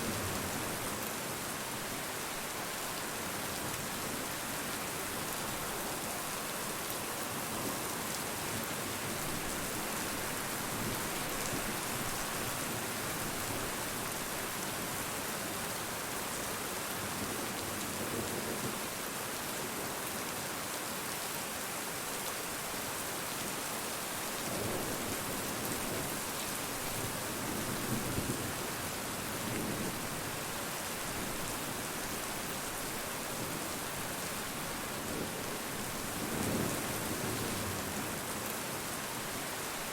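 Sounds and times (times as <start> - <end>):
rain pattering: 0.0 - 1.3.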